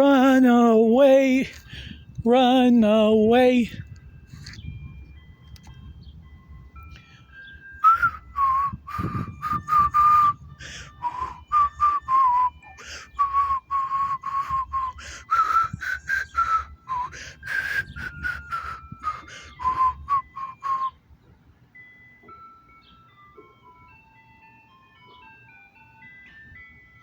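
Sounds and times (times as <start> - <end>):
person whistling a tune: 7.6 - 21.0.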